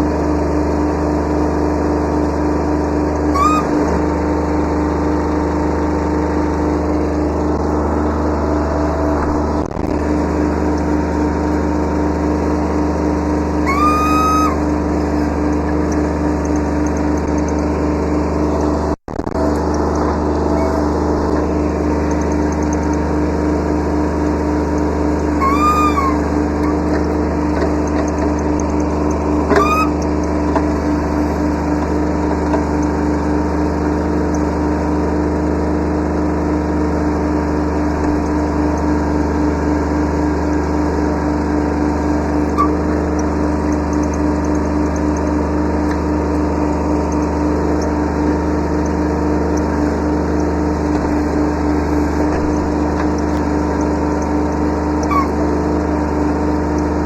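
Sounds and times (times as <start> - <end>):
short rising squeaks: 3.3 - 4.4, 13.6 - 15.5, 20.4 - 21.6, 25.3 - 27.4, 29.3 - 32.2, 42.5 - 43.0, 50.7 - 53.8, 55.0 - 55.7
diesel engine running: 14.5 - 57.0.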